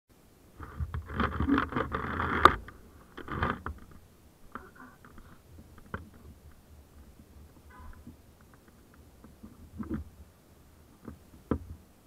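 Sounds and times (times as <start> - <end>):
faint scratches: 0.6 - 10.2
scraping and rustling: 0.6 - 10.3.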